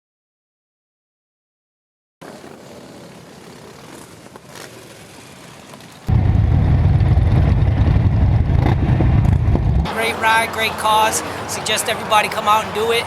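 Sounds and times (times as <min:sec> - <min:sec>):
motorcycle engines rumbling: 0:02.2 - 0:13.0
faint traffic noise: 0:09.9 - 0:13.0.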